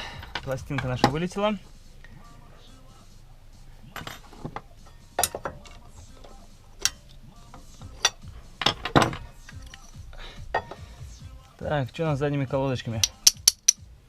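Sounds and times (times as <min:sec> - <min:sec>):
metal brake parts clinking: 0:03.9 - 0:10.8, 0:13.0 - 0:13.8.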